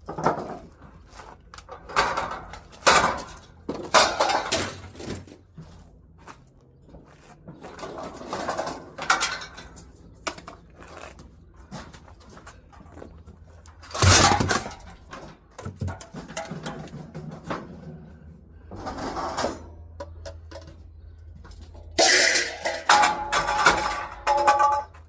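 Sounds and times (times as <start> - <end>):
scrap metal clattering: 0.0 - 5.8, 7.4 - 10.7, 13.6 - 20.8, 21.4 - 25.0.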